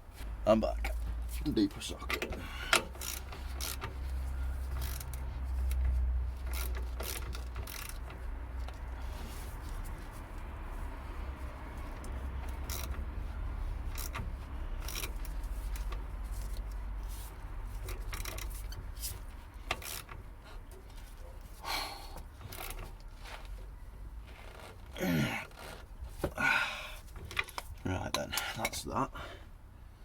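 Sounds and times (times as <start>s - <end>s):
socket and ratchet clicking: 2.7s - 4.0s, 4.7s - 8.8s, 12.0s - 13.1s, 13.8s - 16.8s, 17.8s - 20.7s.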